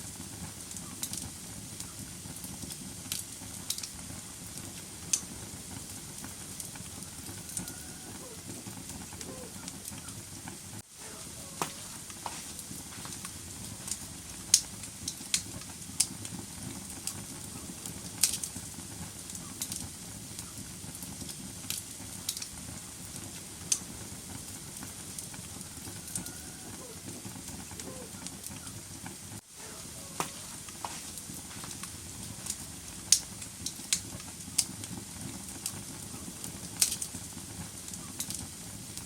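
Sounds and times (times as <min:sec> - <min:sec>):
sharp pops of fire: 0:00.0 - 0:07.7, 0:11.6 - 0:26.2, 0:30.2 - 0:39.0
wood fire crackling: 0:00.0 - 0:39.0.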